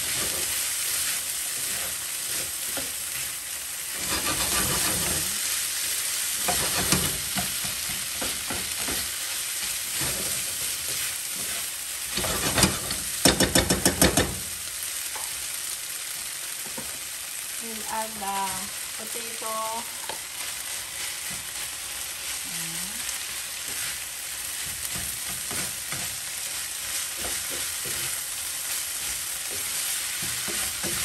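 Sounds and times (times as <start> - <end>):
stirring and scraping pan: 0.0 - 14.4, 23.5 - 31.0
food sizzling in a pan: 0.0 - 31.0
sharp taps on pan: 13.2 - 14.4.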